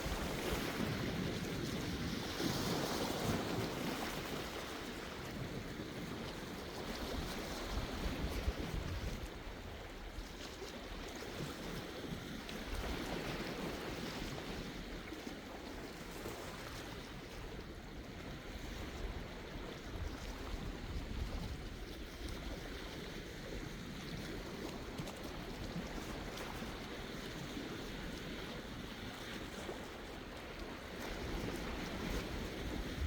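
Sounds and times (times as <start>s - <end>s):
wind rumble on microphone: 0.0s - 33.0s
sea waves washing onto shore: 16.8s - 33.0s.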